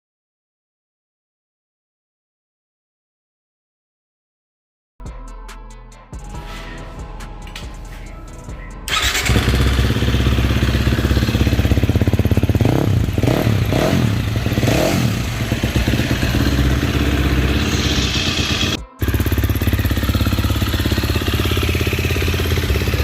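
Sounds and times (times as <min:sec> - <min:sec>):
music: 0:05.0 - 0:13.2, 0:14.9 - 0:23.0
motocross engine revving: 0:08.9 - 0:23.0.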